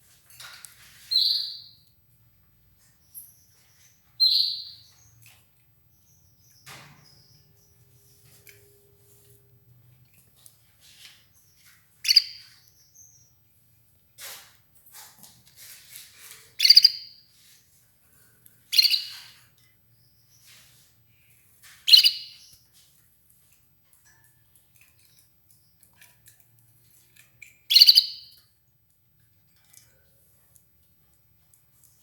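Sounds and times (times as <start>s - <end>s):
canary chirping: 1.0s - 2.0s, 2.8s - 9.2s, 10.2s - 13.6s, 16.5s - 17.4s, 18.6s - 22.8s, 24.4s - 28.6s.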